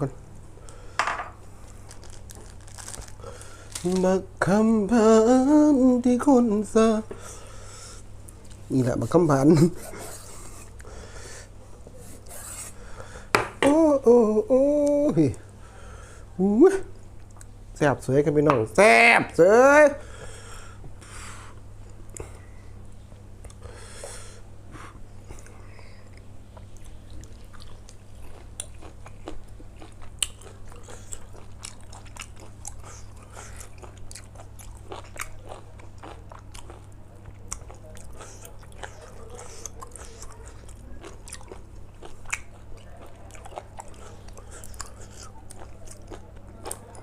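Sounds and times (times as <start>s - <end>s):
person chewing crunchy food: 1.6s - 4.1s, 25.3s - 47.0s.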